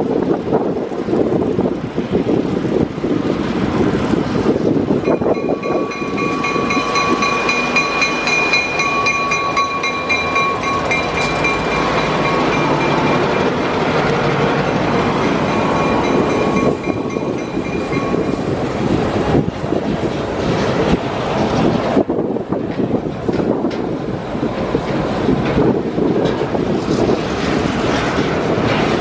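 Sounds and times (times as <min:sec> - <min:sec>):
freight train rumbling on rails: 0:00.0 - 0:29.0
high-pitched squeal: 0:05.0 - 0:19.2.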